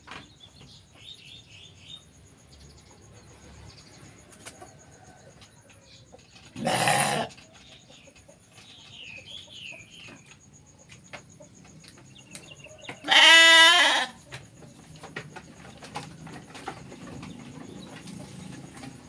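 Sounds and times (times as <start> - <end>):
sheep bleating: 6.6 - 7.3, 13.0 - 14.2.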